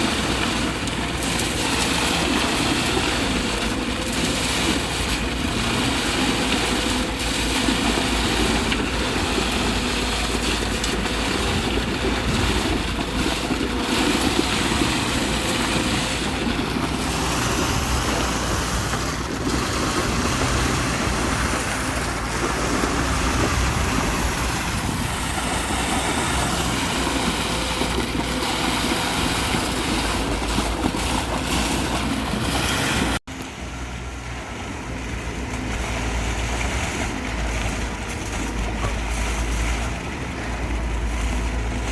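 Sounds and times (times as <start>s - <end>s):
wind noise on microphone: 0.0s - 33.2s
vehicle engine running: 0.0s - 41.9s.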